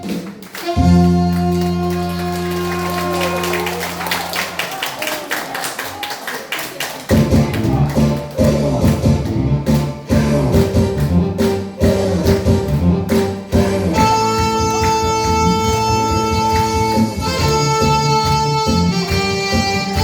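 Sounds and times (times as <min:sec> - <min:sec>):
saxophones playing: 0:00.0 - 0:04.2, 0:07.2 - 0:20.0
backing track with drum beat: 0:07.0 - 0:20.0.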